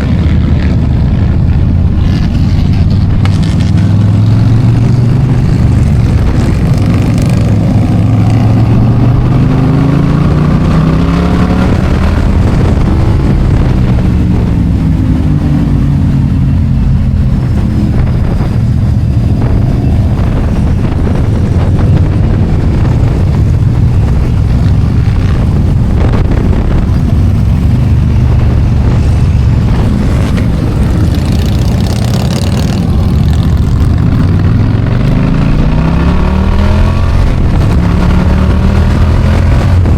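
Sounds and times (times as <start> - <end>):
motorcycle engine running: 0.0 - 39.9
wind rush: 0.0 - 39.9.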